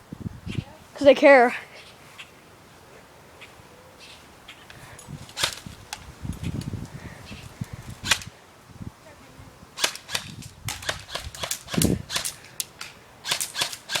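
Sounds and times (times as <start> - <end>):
airsoft guns firing: 9.8 - 14.0.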